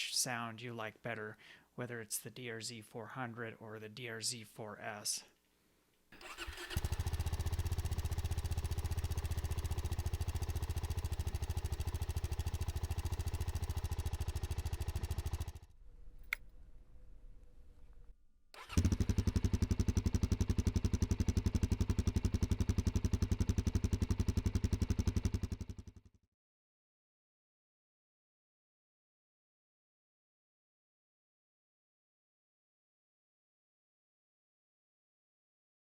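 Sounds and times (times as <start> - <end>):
motorcycle engines idling: 6.3 - 16.6, 18.6 - 25.9
click: 16.2 - 16.5.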